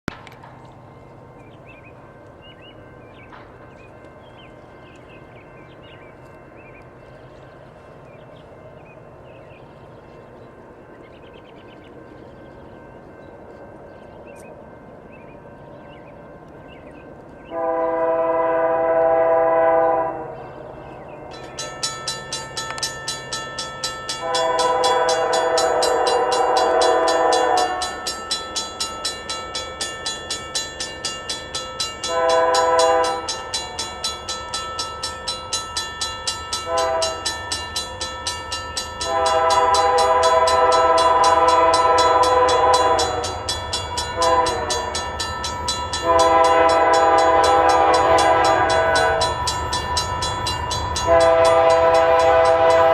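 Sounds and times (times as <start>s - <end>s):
low locomotive rumble: 0.1s - 52.9s
crossing bell ringing: 0.2s - 52.9s
locomotive air horn: 17.5s - 20.4s, 24.2s - 28.1s, 32.0s - 33.7s, 36.6s - 37.4s, 39.0s - 45.2s, 45.9s - 49.5s, 51.0s - 52.9s.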